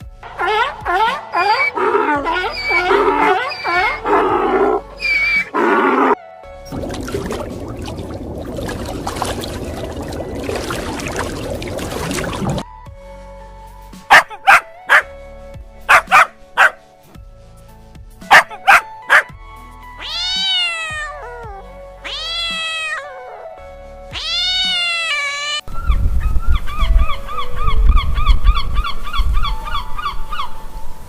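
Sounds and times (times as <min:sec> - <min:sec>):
background music: 0:00.0 - 0:31.0
low rumble: 0:06.7 - 0:12.7
small dog barking: 0:14.1 - 0:15.1, 0:15.9 - 0:16.8, 0:18.3 - 0:19.3
cat meowing: 0:20.0 - 0:23.3, 0:24.1 - 0:25.6.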